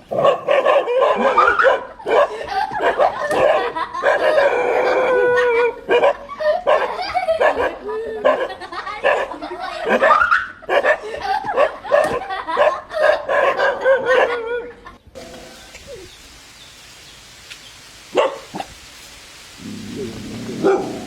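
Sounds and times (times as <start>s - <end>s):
dog barking excitedly: 0.1s - 4.6s, 5.6s - 14.5s, 18.1s - 18.8s, 20.0s - 21.0s
quiet hiss: 15.1s - 21.0s.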